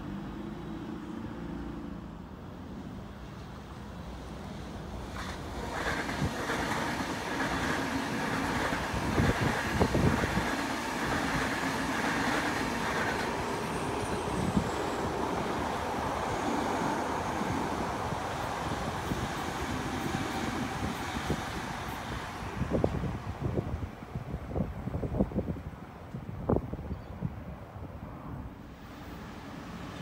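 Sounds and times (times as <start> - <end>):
train wheels rumbling on rail: 3.6 - 26.8
train high whine: 4.3 - 24.8.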